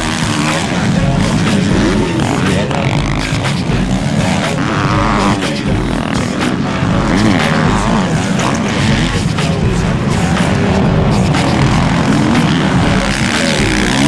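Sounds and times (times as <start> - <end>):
motorbike engines revving: 0.0 - 14.0
music with bass beat: 0.0 - 14.0.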